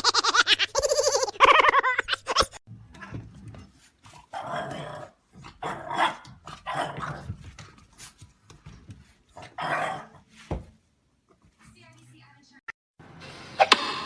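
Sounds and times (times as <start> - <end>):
dog growling and barking: 4.2 - 7.5, 9.4 - 10.2.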